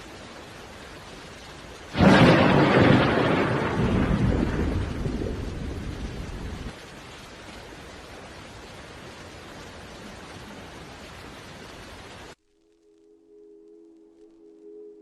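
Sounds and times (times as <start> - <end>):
loud rumbling crash: 2.0 - 5.2.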